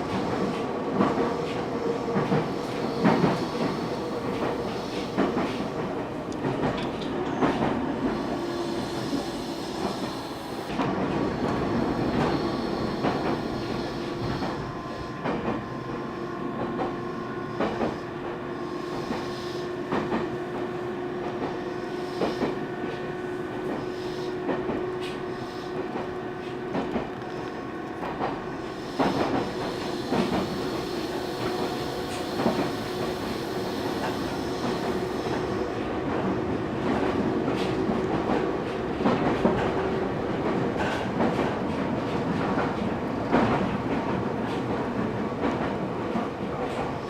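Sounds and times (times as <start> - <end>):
train rumbling on rails: 0.0 - 47.0.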